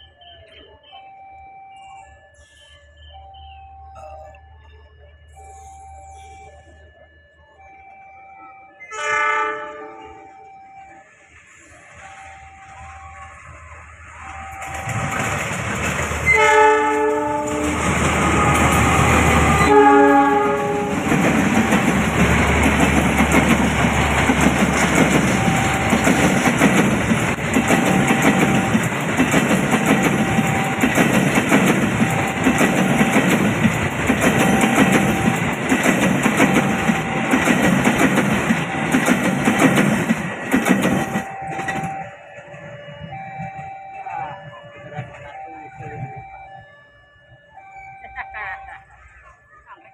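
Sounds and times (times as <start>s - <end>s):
train passing with rumble: 0.0s - 49.9s
locomotive horn blasts: 8.8s - 10.4s, 16.2s - 24.4s
wheels clattering over rails: 14.6s - 42.6s.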